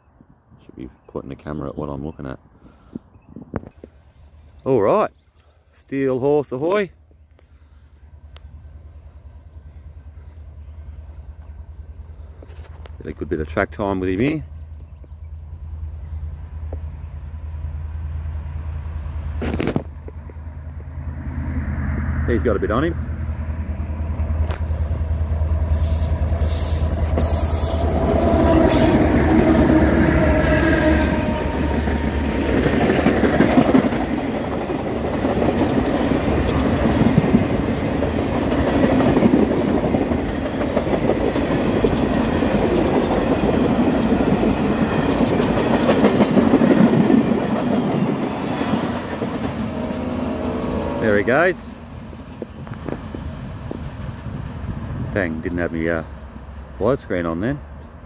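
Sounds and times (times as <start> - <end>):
diesel locomotive engine hum: 3.0 - 58.0
train wheels clickety-clack: 31.7 - 49.6.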